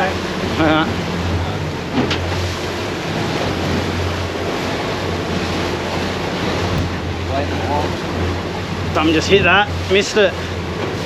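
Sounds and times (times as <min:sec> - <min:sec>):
outboard engine drone: 0:00.0 - 0:11.0
water washing against hull: 0:00.0 - 0:11.0
wind buffeting microphone: 0:00.0 - 0:11.0.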